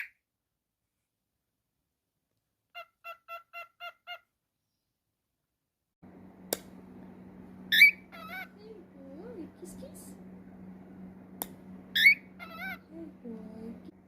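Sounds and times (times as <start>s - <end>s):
cockatiel chirp and warbling call: 0.0s - 0.2s, 2.7s - 4.3s, 7.7s - 8.6s, 11.9s - 12.9s
sharp click: 6.5s - 6.8s, 11.4s - 11.6s
cockatiel whistling: 7.7s - 8.5s, 11.9s - 12.9s.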